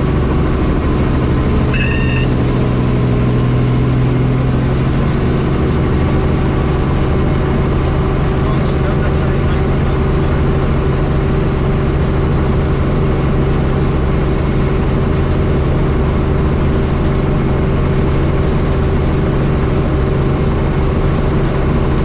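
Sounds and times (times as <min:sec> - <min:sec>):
helicopter rotor and engine drone: 0:00.0 - 0:22.0
steady tones: 0:01.8 - 0:02.6.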